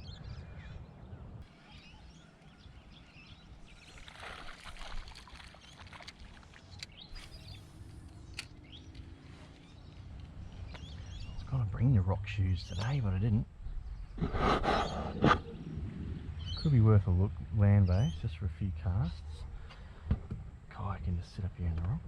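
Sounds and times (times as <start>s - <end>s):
birds chirping: 0.0s - 22.0s
steady low rumble: 6.8s - 22.0s.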